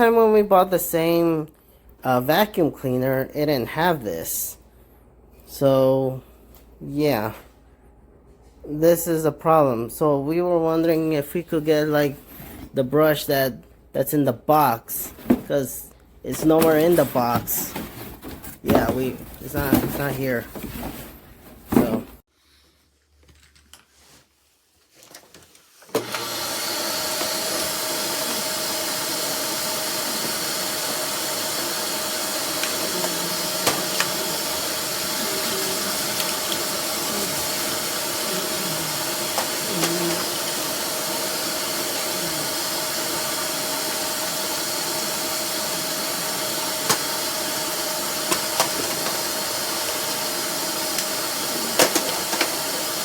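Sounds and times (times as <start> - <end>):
vacuum cleaner running: 16.3 - 22.2, 25.9 - 53.0.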